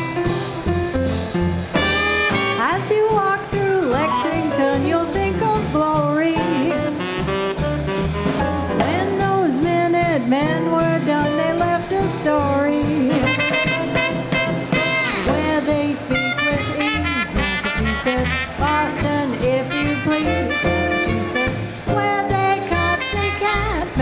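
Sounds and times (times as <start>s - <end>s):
drums: 0.0s - 24.0s
walking bass: 0.0s - 24.0s
horn playing lead: 1.7s - 3.1s, 6.4s - 8.7s, 13.1s - 24.0s.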